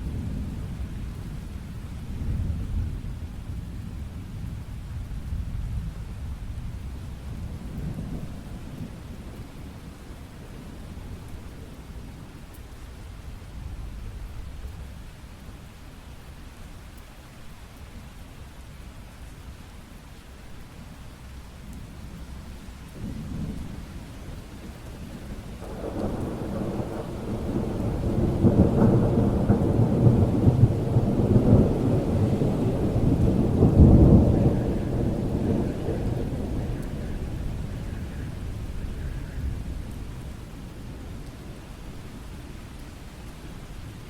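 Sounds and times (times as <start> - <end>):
steady rain: 0.0 - 44.0
thunder rolling: 23.0 - 41.2.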